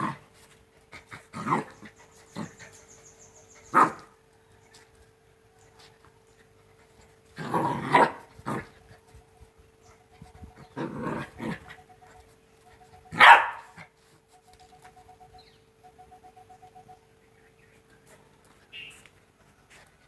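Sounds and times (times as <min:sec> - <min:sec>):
puppy barking: 0:03.7 - 0:04.1, 0:07.8 - 0:08.2, 0:13.0 - 0:13.9.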